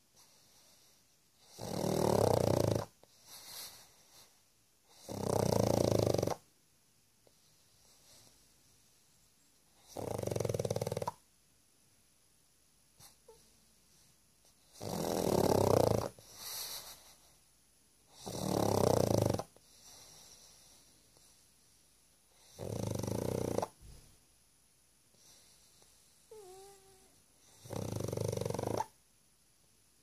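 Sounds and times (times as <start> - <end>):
dog snoring loudly: 1.4 - 3.8, 4.9 - 6.4, 9.8 - 11.2, 14.7 - 16.8, 18.1 - 20.1, 22.4 - 23.8, 26.3 - 29.0.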